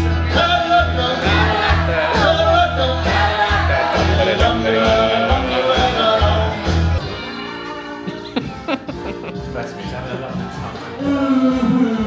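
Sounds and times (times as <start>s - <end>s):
person singing karaoke: 0.0s - 7.2s, 10.3s - 12.0s
backing track with bass beat: 0.0s - 12.0s.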